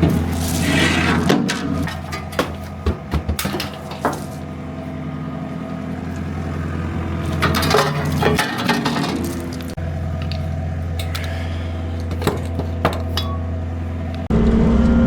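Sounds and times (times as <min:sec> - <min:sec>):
sharp metal clanks and knocks: 0:00.0 - 0:04.5, 0:07.2 - 0:11.3, 0:12.0 - 0:13.6
diesel engine running: 0:00.0 - 0:15.0.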